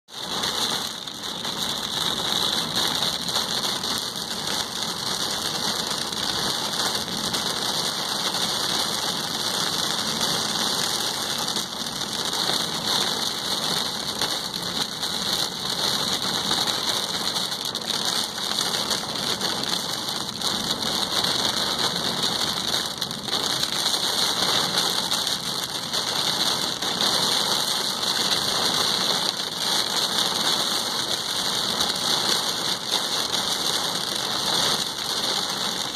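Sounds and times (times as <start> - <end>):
heavy rain on car roof: 0.1 - 35.9.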